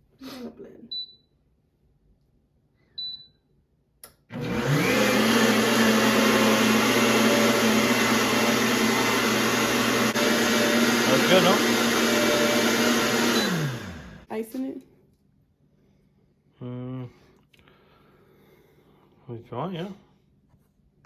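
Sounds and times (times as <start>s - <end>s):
click: 4.0s - 4.2s
blender motor running: 4.3s - 14.3s.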